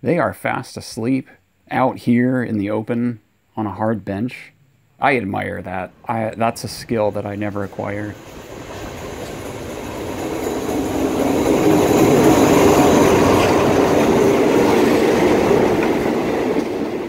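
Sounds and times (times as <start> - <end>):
passenger train passing: 5.8 - 17.0.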